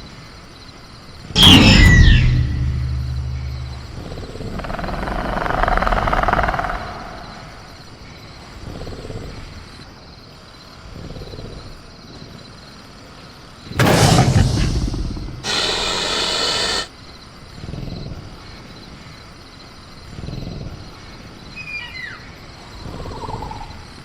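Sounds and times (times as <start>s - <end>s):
crickets chirring: 0.0s - 24.0s
rough rasping creature growl: 13.8s - 16.9s.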